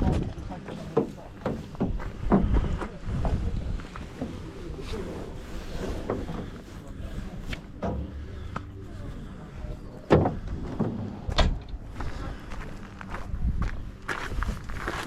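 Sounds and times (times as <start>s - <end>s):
wind rumble on microphone: 0.0s - 0.5s, 1.8s - 6.4s, 10.2s - 15.0s.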